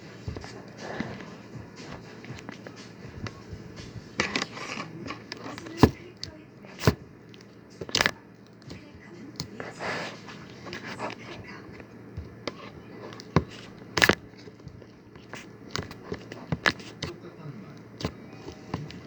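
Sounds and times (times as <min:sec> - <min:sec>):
sticky slime popping and clicking: 0:04.2 - 0:09.5.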